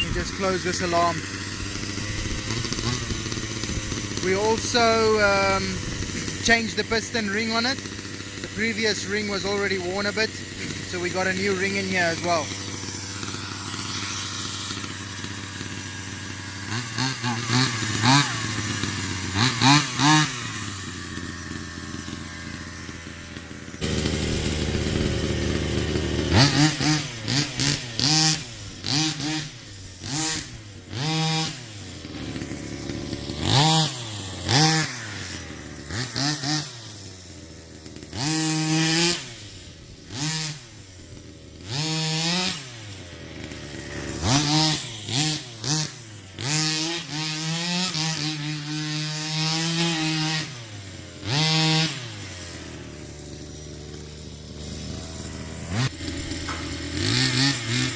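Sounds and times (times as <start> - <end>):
two-stroke engine revving: 0.0 - 57.9.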